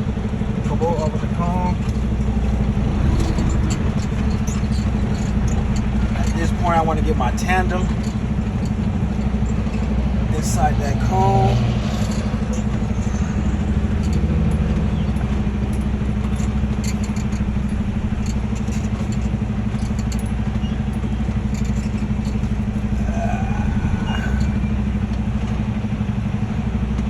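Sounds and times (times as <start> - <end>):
faint clicks and rattles: 0.0 - 25.7
diesel truck engine idling: 0.0 - 27.0.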